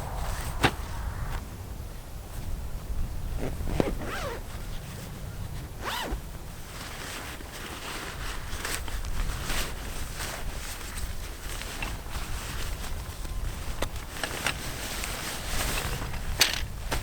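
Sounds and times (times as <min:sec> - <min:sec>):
zipper being pulled: 0:03.4 - 0:04.4, 0:05.8 - 0:06.2.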